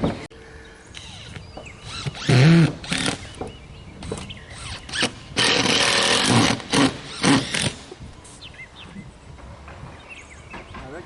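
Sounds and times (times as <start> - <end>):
power tool cutting wood: 1.0 - 3.4, 4.1 - 7.9.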